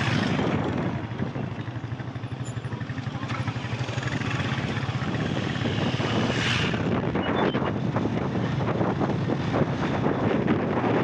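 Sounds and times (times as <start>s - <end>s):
wind noise on microphone: 0.0s - 1.7s, 4.3s - 11.0s
small motorcycle engine running: 0.0s - 6.4s.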